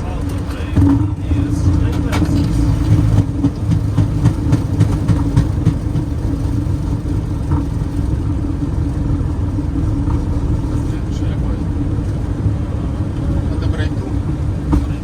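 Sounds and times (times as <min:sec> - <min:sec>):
constant hum: 0:00.0 - 0:15.0
engine and wheel rumble: 0:00.0 - 0:15.0.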